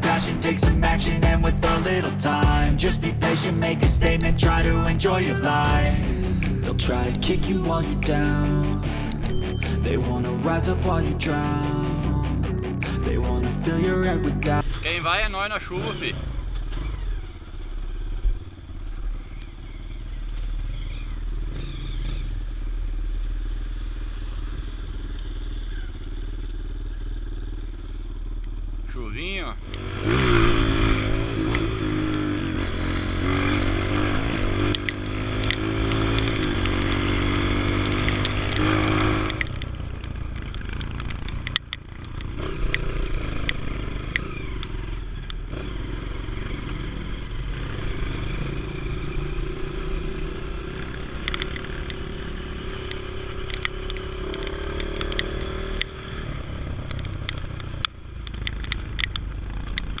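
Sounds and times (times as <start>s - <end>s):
motorcycle engine revving: 0.0s - 60.0s
scattered clicks and knocks: 34.6s - 44.8s.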